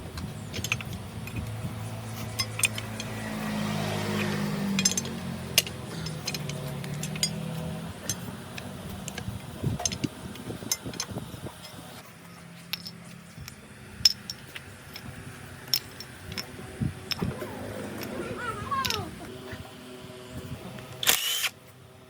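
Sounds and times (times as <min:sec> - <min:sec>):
metallic clinks and taps: 0:04.7 - 0:10.1, 0:12.6 - 0:16.5.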